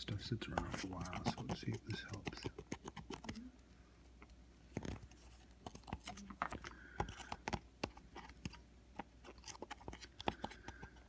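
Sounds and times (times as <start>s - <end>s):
swab scratching metal contacts: 0.4s - 3.2s.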